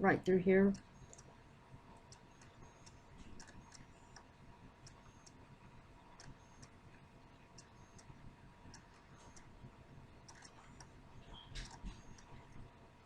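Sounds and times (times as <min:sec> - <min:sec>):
faint light ticks and clicks: 0:06.2 - 0:09.5.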